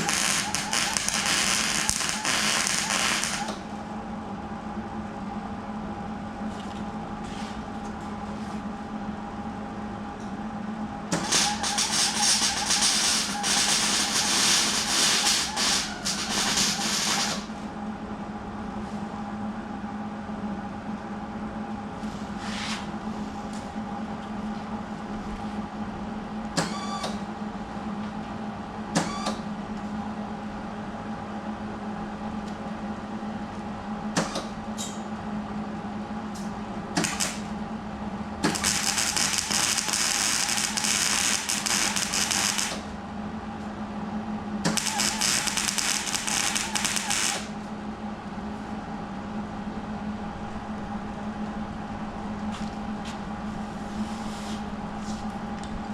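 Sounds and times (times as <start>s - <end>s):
arc welding crackle: 0.0s - 3.6s, 11.2s - 17.5s, 37.0s - 37.5s, 38.4s - 42.9s, 44.7s - 47.5s
machine hum: 0.0s - 55.9s.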